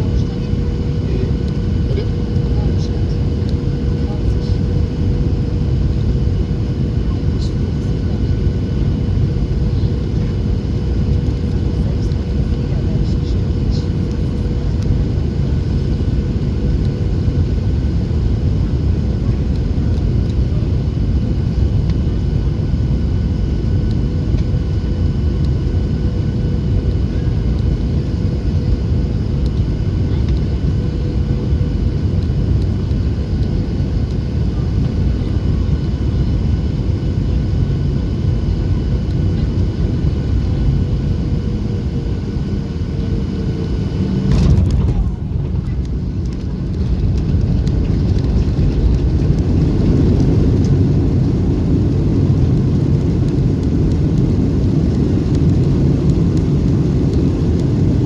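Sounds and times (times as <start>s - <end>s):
jet engine roar: 0.0s - 58.0s.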